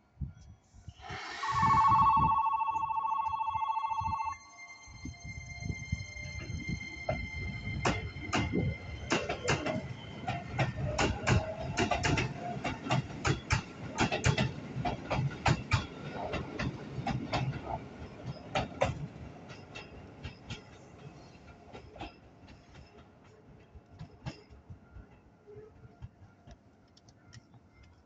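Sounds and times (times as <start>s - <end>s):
train wheels clicking over rail joints: 7.1s - 27.0s.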